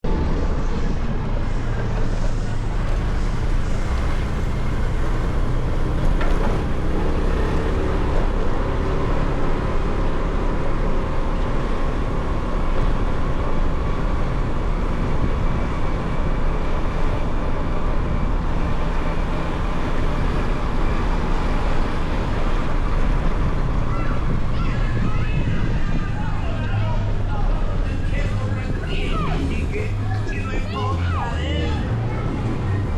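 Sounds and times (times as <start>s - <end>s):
wind and road noise: 0.0s - 32.9s
motorcycle engine running: 1.2s - 25.0s.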